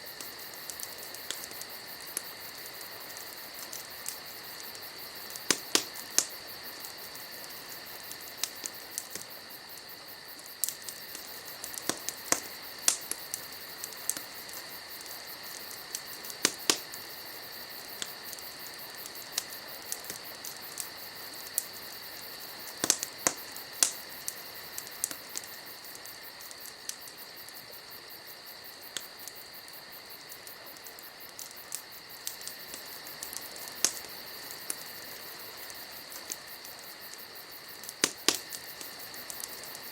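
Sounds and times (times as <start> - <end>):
crickets singing: 0.0 - 39.9
wood fire crackling and popping: 0.0 - 39.9.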